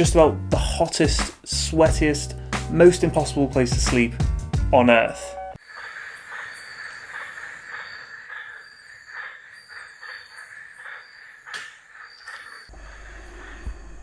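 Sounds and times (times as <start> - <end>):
insects trilling: 5.6 - 14.0.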